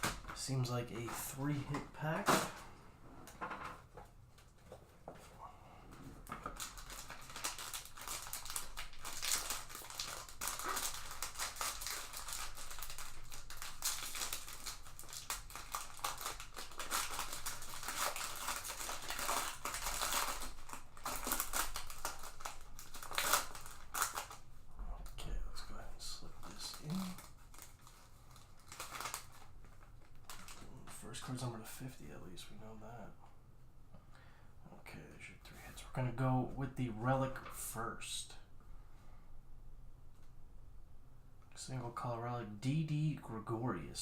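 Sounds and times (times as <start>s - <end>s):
plastic wrapping crinkling and tearing: 6.2s - 24.4s, 25.9s - 31.4s.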